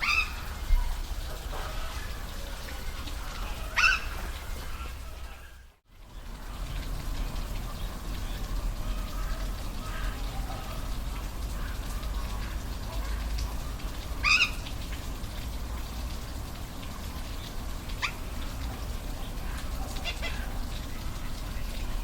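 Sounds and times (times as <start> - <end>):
waterfall rushing: 0.0 - 5.6
animal call: 1.3 - 5.6.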